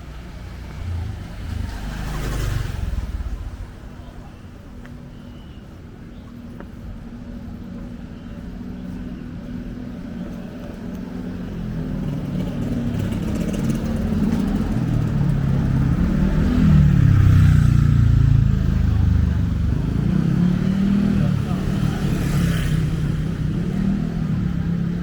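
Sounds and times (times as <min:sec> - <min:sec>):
vehicle engine passing: 0:00.0 - 0:04.7, 0:10.1 - 0:25.0.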